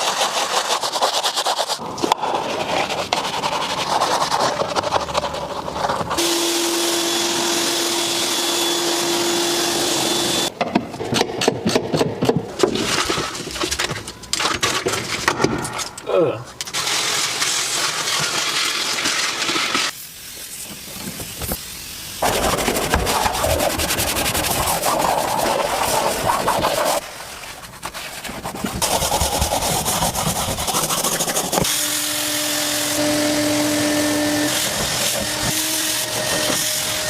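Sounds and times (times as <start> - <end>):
cleaning machine hissing: 6.2 - 10.5, 31.0 - 37.0.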